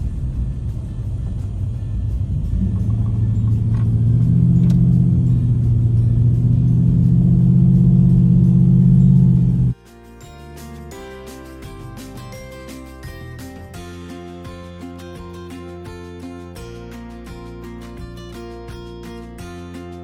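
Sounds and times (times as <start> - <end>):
steady engine drone: 0.0 - 9.8
vehicle engine rumble: 0.0 - 9.8.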